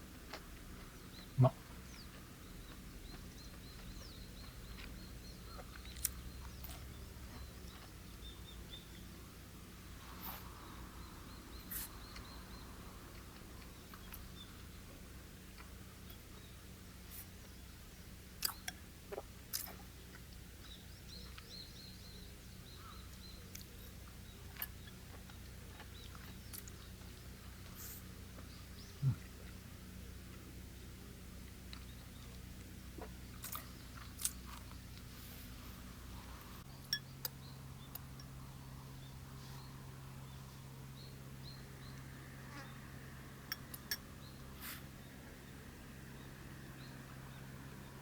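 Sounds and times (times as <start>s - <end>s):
low steady hum: 0.0s - 48.0s
small bird chirping: 1.0s - 9.3s, 10.0s - 14.8s.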